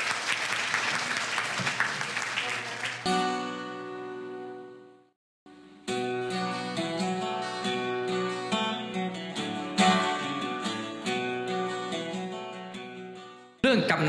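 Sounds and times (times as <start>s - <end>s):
instrumental music: 3.1s - 13.6s.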